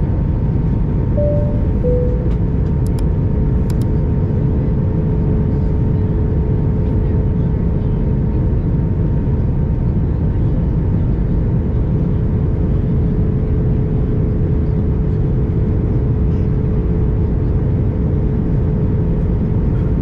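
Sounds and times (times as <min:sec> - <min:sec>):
constant cabin hum: 0:01.2 - 0:03.8, 0:09.8 - 0:20.0.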